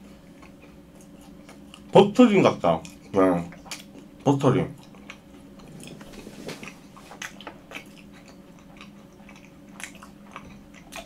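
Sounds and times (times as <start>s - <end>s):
close chewing mouth sounds: 0.0s - 11.0s
mouth clicks and smacks: 6.6s - 11.0s.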